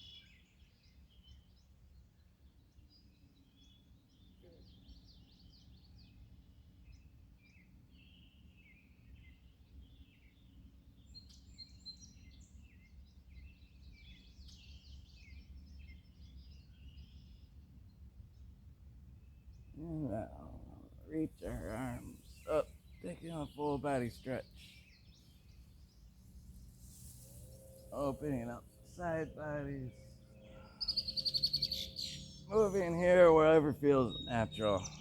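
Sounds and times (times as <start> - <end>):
birds chirping and singing: 19.5 - 35.0.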